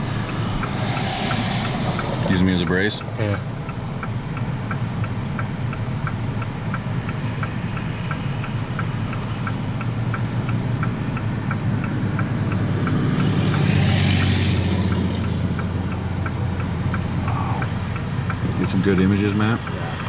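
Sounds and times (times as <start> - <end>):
rushing noise: 0.0 - 4.7
steady ticking: 0.0 - 20.0
vehicle idling hum: 0.0 - 20.0.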